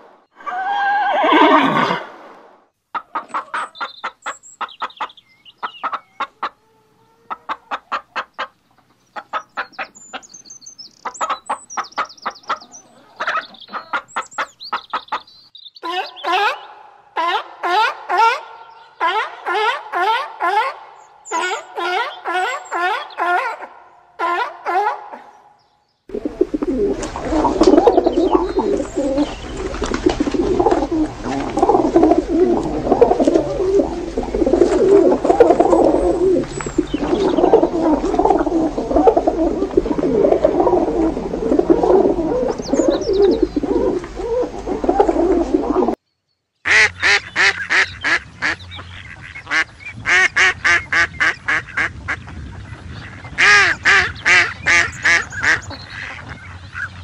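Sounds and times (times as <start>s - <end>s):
pigeons cooing: 1.1s - 2.0s, 26.1s - 46.0s
ducks quacking: 26.1s - 46.0s, 46.7s - 57.0s.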